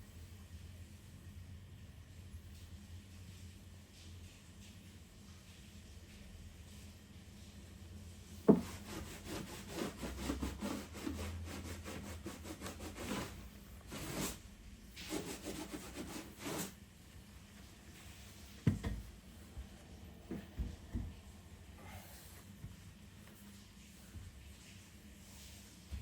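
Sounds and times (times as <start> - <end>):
hand tool rubbing over surface: 8.5 - 14.4, 15.0 - 16.8.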